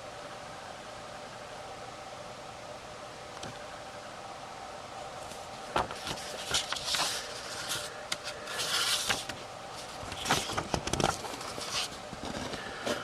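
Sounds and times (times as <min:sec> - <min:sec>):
faint steady hum: 0:00.0 - 0:13.0
paper pages turning: 0:05.2 - 0:13.0.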